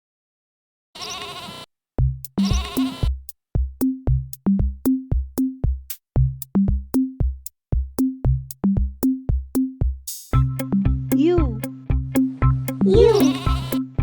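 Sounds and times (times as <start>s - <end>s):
short low bass notes: 2.0s - 2.8s, 4.0s - 4.7s, 10.4s - 14.0s
drum machine beat: 2.0s - 14.0s.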